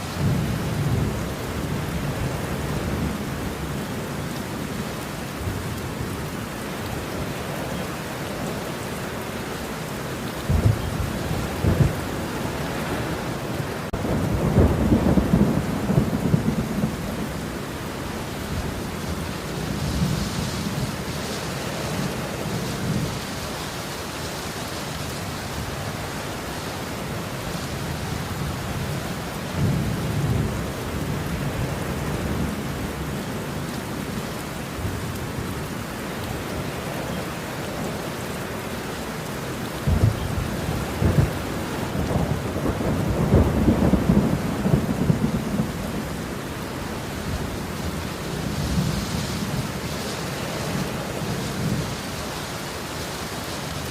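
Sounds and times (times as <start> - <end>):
steady rain: 0.0 - 53.9
rolling thunder: 10.4 - 17.5, 39.8 - 46.3.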